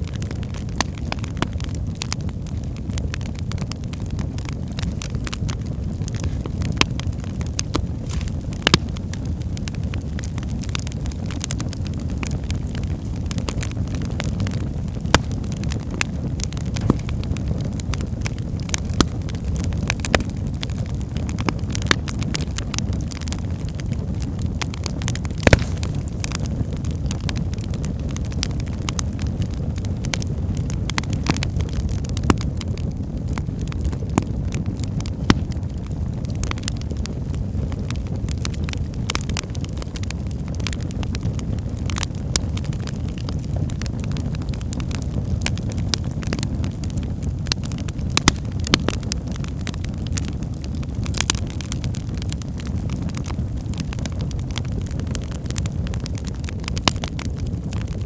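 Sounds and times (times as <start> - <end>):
wood fire burning: 0.0 - 58.0.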